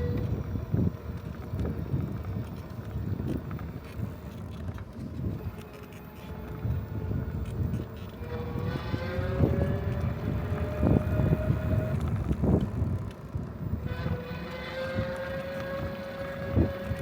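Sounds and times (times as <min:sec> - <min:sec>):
bicycle road rumble: 0:00.0 - 0:17.0
wind buffeting microphone: 0:00.0 - 0:17.0
whining tone: 0:13.8 - 0:17.0.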